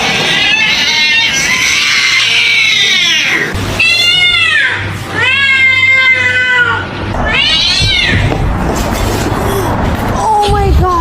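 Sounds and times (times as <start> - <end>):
cat meowing: 0.1 - 8.3.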